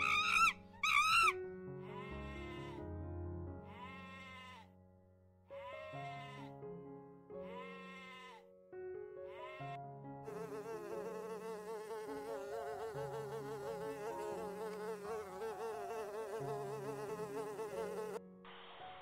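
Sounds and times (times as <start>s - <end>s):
bee buzzing: 10.3s - 18.2s.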